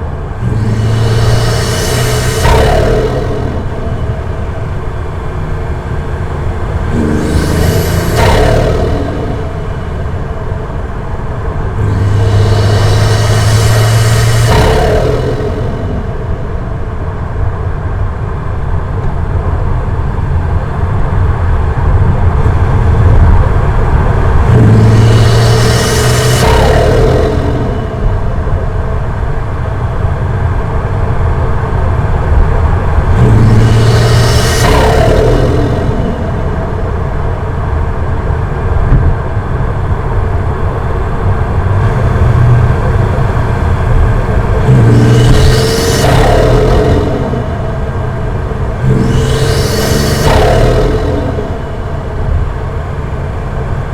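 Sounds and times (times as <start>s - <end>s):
car engine droning: 0.0s - 53.9s
hiss: 0.4s - 17.0s, 24.2s - 29.1s, 32.9s - 37.7s, 40.7s - 53.0s.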